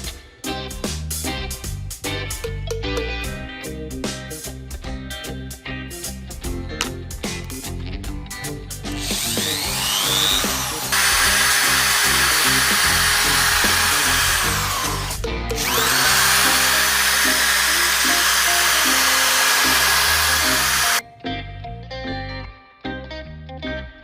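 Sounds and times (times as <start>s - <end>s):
electric drill whining: 8.9s - 21.0s.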